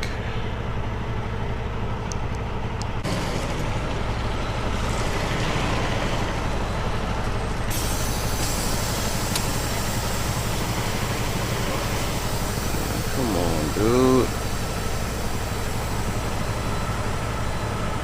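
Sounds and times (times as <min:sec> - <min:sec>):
diesel truck engine idling: 0:00.0 - 0:18.0
loud hiss: 0:07.7 - 0:15.9.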